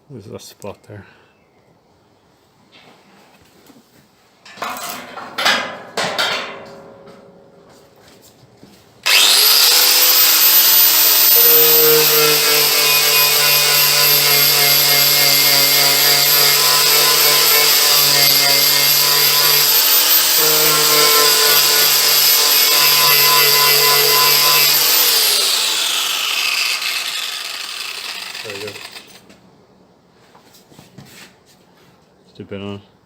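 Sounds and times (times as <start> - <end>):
angle grinder whining: 9.0 - 29.2.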